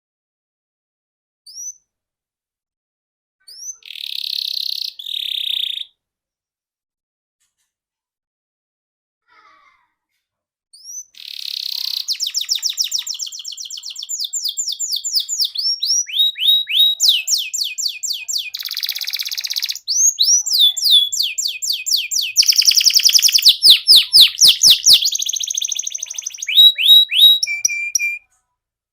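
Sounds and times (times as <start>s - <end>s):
canary singing trills: 3.5s - 5.9s, 10.8s - 28.2s.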